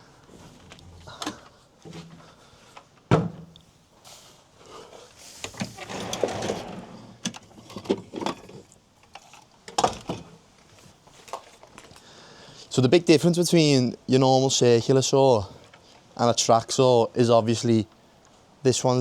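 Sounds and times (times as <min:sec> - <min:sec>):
rustling scrape: 0:04.0 - 0:07.2.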